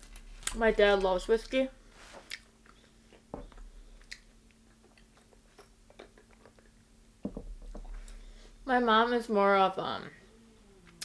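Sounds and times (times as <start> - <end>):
chewing crispy fried chicken: 4.0 - 6.9.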